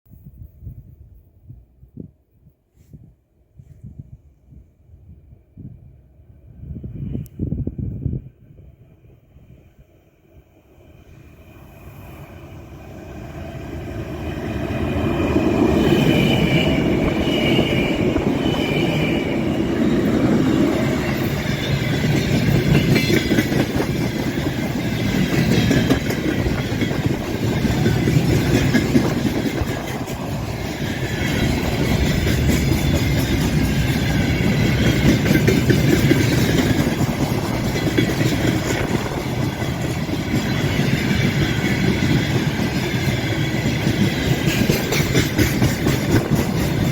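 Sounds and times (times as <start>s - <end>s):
freight train rumbling: 4.0s - 46.9s
locomotive high whine: 10.6s - 46.9s
wheels clacking over rail joints: 15.3s - 46.9s.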